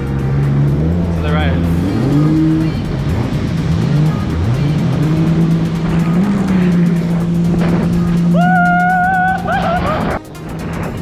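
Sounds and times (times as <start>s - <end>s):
jet ski engine revving: 0.0s - 11.0s.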